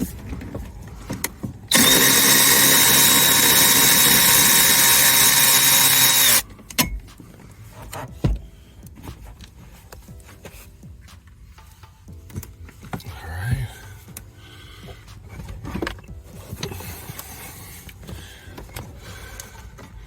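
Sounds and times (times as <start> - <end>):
power drill running: 1.7 - 6.4.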